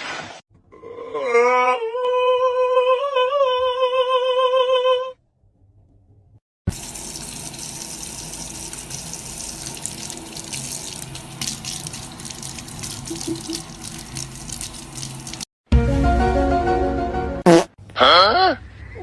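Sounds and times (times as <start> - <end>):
crackling splashes: 6.7 - 15.5
water running and splashing: 6.7 - 15.5.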